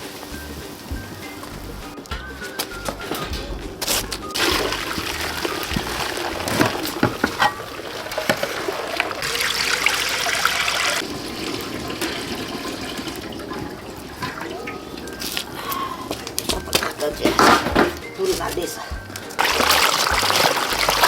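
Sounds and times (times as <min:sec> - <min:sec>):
water pouring and splashing: 0:00.0 - 0:21.0.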